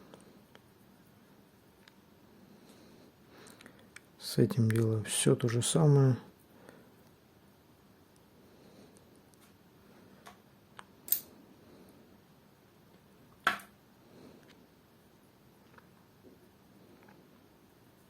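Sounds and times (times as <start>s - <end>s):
light clicks of metal parts: 11.1s - 11.3s.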